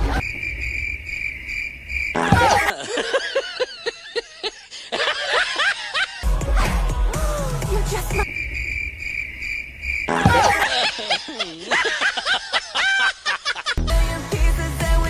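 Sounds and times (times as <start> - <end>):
cricket chirping: 0.0 - 2.7, 8.1 - 11.5
comic voice swooping in pitch: 6.4 - 8.3.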